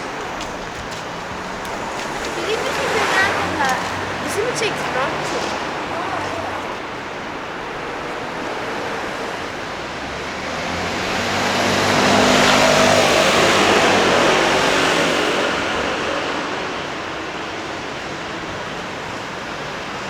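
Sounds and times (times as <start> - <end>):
traffic background noise: 0.0 - 20.0
vehicle passing close: 0.8 - 6.9.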